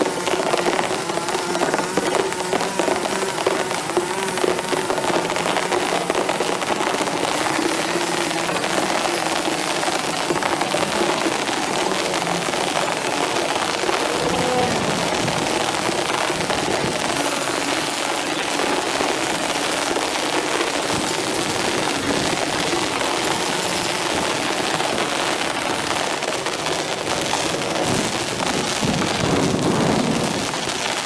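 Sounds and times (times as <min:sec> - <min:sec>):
heavy rain: 0:00.0 - 0:31.0.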